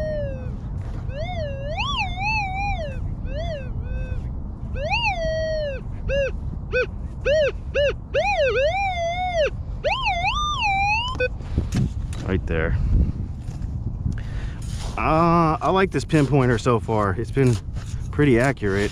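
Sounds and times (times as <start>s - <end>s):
gull calling: 0.0s - 0.5s, 1.1s - 11.3s
low rumble: 0.0s - 18.7s.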